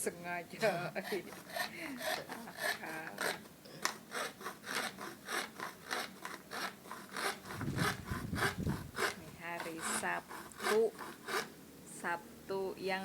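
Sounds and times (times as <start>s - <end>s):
hand strokes on plywood: 4.1s - 11.5s
low rumble of handling: 7.6s - 9.8s.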